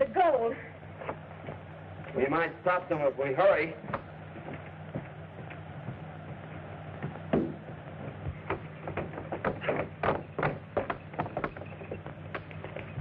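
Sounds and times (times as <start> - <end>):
film soundtrack low hum: 0.0 - 13.0
sharp knocks and clatters: 3.8 - 13.0.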